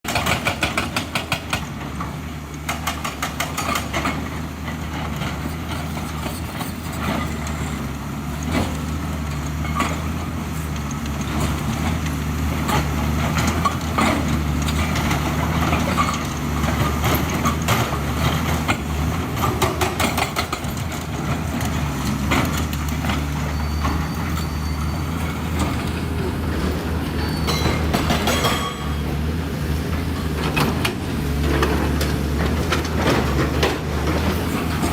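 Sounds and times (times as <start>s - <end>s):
diesel engine running: 1.5s - 34.9s
metal knocks and clanks: 25.2s - 29.3s.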